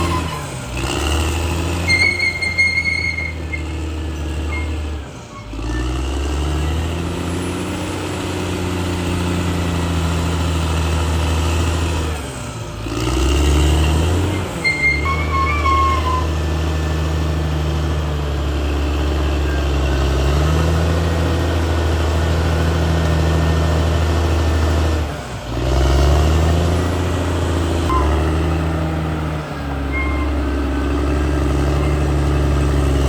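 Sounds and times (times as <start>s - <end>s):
short high squeaks: 0.0s - 0.6s, 1.8s - 5.8s, 14.3s - 16.4s, 27.9s - 28.5s, 29.8s - 33.0s
bulldozer diesel engine under load: 0.0s - 33.0s.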